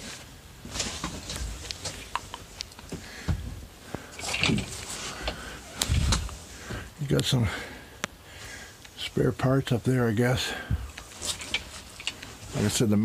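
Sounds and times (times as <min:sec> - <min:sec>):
rustling: 0:00.0 - 0:06.9, 0:10.8 - 0:13.0.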